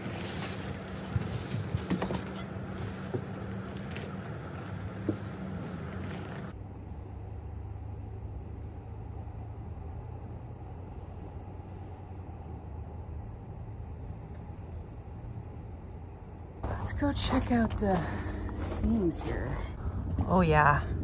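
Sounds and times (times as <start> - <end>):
insects chirring: 0.0 - 21.0
low steady rumble: 16.6 - 21.0.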